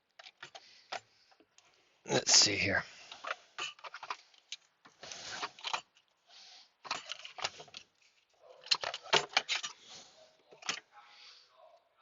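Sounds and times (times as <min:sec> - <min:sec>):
fuse box clicks and rattles: 0:08.6 - 0:09.8.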